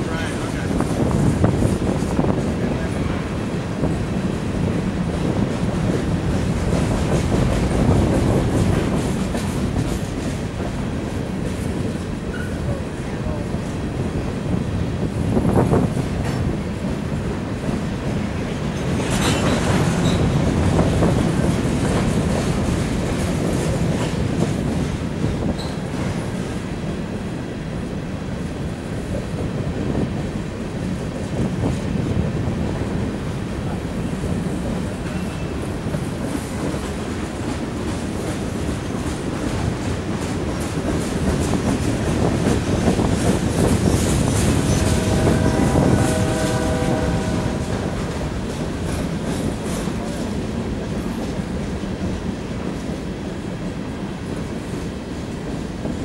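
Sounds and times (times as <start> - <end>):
freight train rolling past: 0.0 - 56.0
train horn: 44.4 - 48.5.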